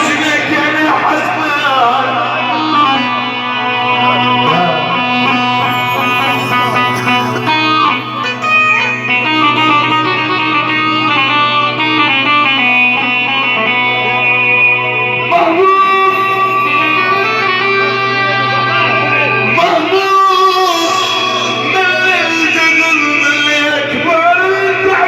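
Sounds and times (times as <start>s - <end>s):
low drone: 0.0s - 13.0s.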